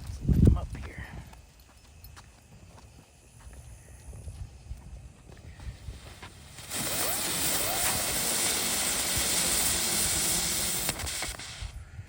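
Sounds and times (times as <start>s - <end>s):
ground spinner fireworks hissing: 2.2s - 12.0s.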